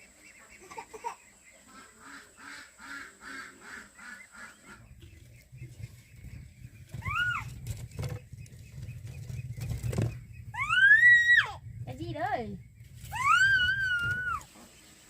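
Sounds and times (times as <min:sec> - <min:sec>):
fowl honking calls: 0:00.0 - 0:05.0
low rumble: 0:04.7 - 0:14.4.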